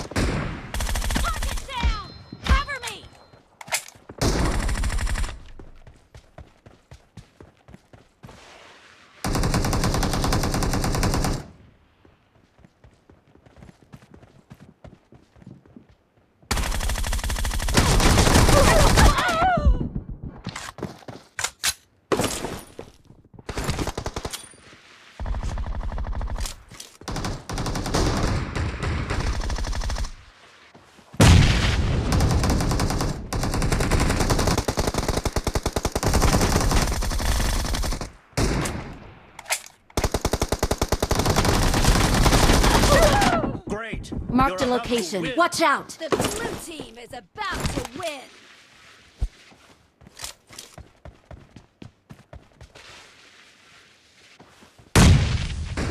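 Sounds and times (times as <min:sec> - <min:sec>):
video game automatic gunfire: 0:16.5 - 0:19.0, 0:32.1 - 0:38.1, 0:40.0 - 0:43.1.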